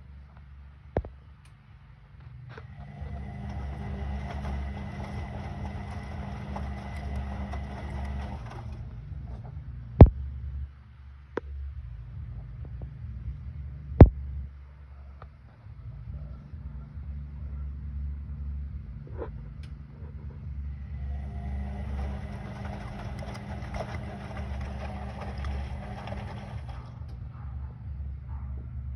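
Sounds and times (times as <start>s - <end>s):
washing machine motor hum: 2.5s - 10.2s, 20.2s - 27.9s.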